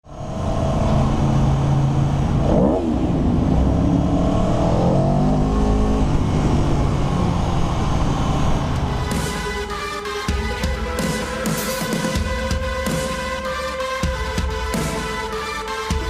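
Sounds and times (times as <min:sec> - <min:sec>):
motorcycle engine revving: 0:00.2 - 0:09.4.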